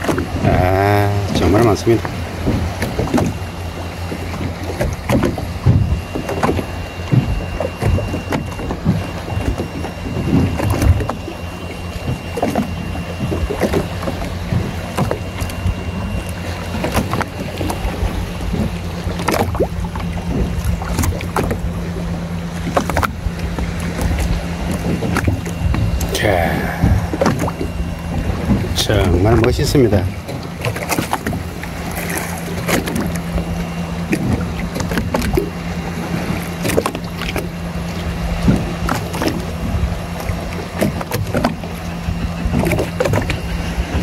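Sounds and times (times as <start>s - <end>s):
boat engine humming: 0.0s - 44.0s.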